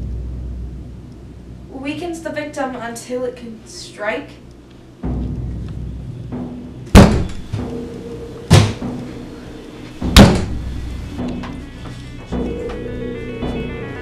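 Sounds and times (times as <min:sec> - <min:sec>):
heavy booming bangs: 0:05.0 - 0:11.3
low droning horror score: 0:07.4 - 0:14.0.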